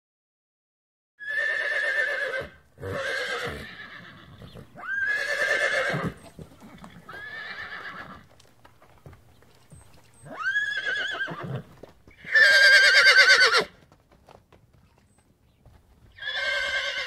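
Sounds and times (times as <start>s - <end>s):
horse whinnying: 1.2s - 8.3s, 10.2s - 13.8s, 16.1s - 17.0s.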